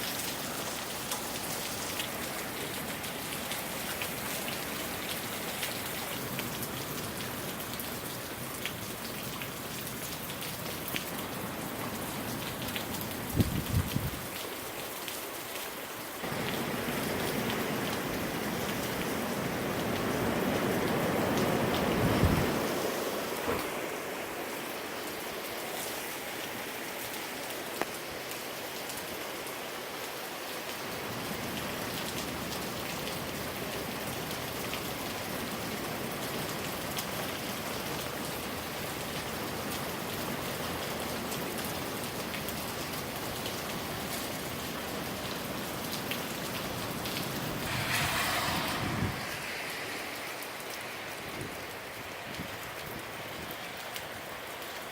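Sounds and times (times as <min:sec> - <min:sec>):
steady rain falling: 0:00.0 - 0:54.9
wind rumbling on microphone: 0:13.2 - 0:14.3, 0:16.3 - 0:23.7, 0:47.5 - 0:53.6.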